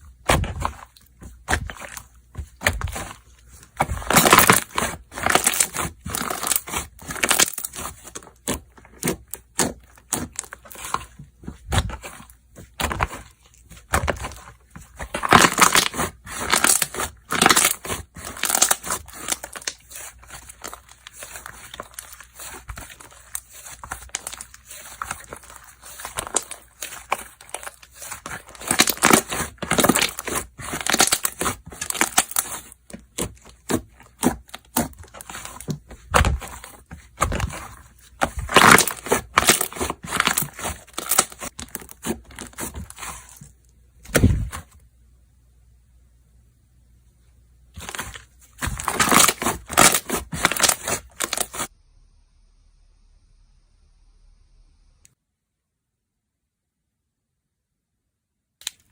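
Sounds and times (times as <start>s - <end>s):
slime crackling and popping: 3.8s - 12.2s, 12.8s - 43.4s, 47.8s - 51.7s.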